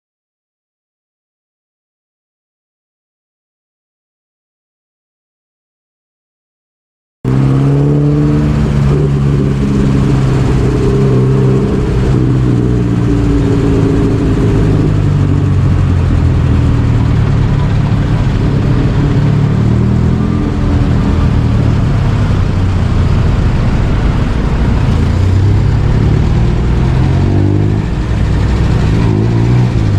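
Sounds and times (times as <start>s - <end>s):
motorbike engine revving: 7.3s - 29.9s
road and wind noise: 7.3s - 29.9s.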